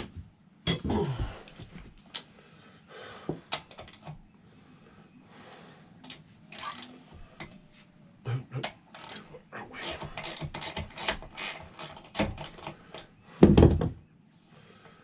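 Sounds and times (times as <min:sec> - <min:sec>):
hand tools clicking and knocking: 0:08.6 - 0:13.8.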